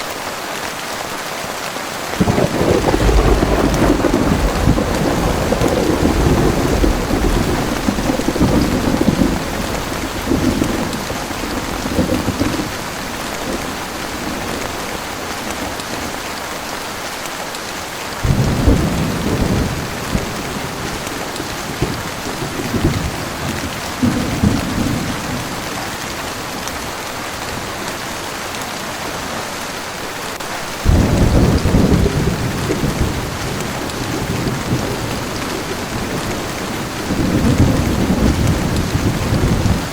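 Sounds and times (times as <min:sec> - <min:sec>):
heavy rain falling: 0:00.0 - 0:39.9
thunder rumbling: 0:02.2 - 0:16.3, 0:18.2 - 0:27.8, 0:30.7 - 0:39.9.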